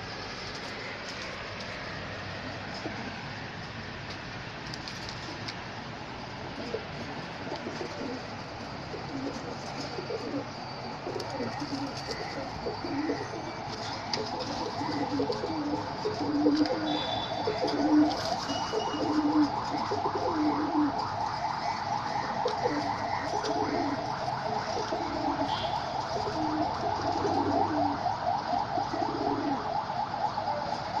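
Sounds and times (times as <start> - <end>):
doves cooing: 6.4 - 31.0
rapid bird chatter: 11.2 - 16.2.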